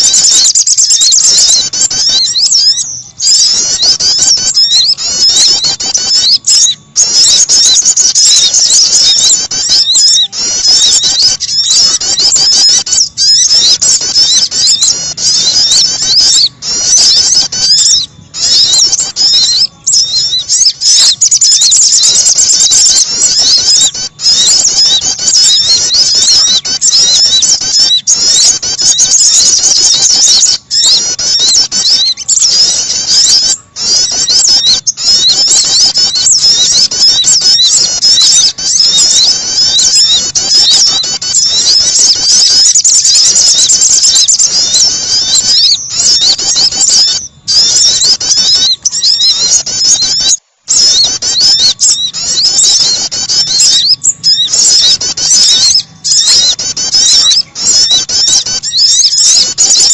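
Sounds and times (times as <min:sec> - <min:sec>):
small songbirds chirping: 0:00.0 - 0:59.9.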